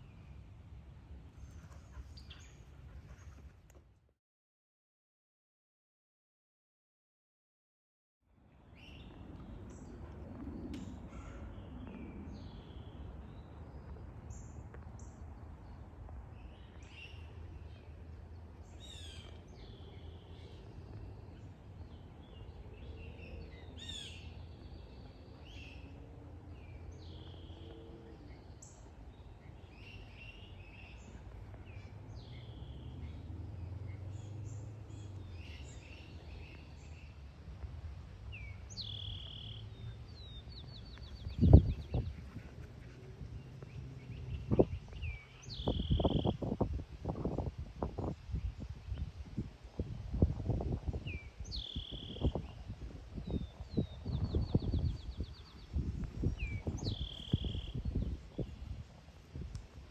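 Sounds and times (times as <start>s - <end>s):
birds chirping: 38.3s - 46.6s, 53.3s - 58.8s.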